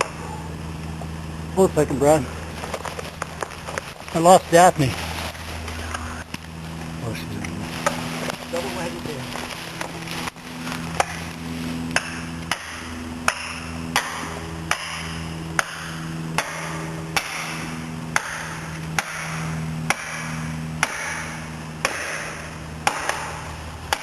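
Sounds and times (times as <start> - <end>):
hammer striking wedge: 12.0 - 24.0.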